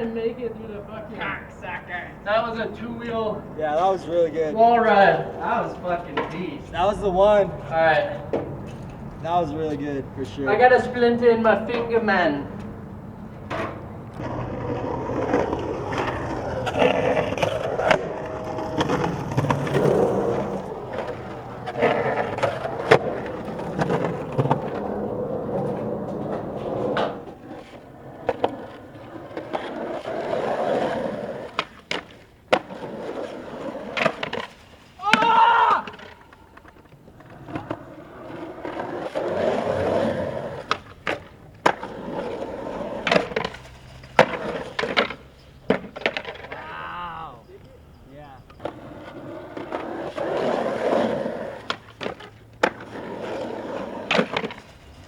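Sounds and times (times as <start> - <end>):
skateboard clacking: 0.0 - 55.0
skateboard wheels rolling on concrete: 0.0 - 55.0.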